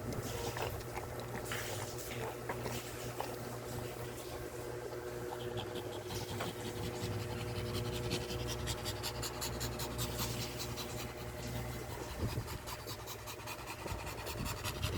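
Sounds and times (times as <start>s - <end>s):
puppies suckling wet smacking: 0.0s - 7.6s
steady low hum: 0.0s - 14.9s.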